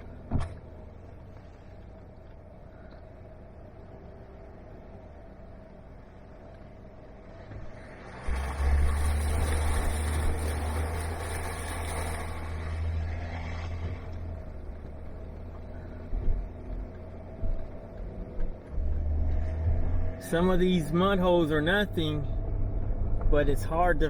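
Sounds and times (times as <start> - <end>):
off-road vehicle engine pulling hard: 7.1 - 24.0
tyres and spray rushing: 8.1 - 14.1.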